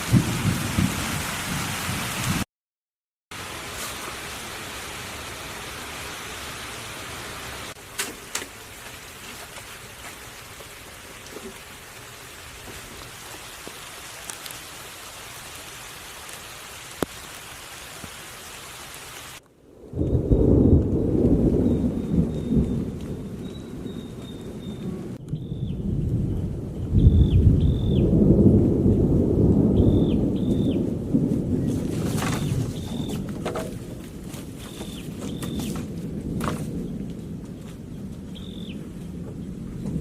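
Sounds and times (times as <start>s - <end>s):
low rumble of thunder: 0.0s - 2.4s, 19.7s - 40.0s
steady rain hissing: 0.0s - 2.4s, 3.3s - 40.0s.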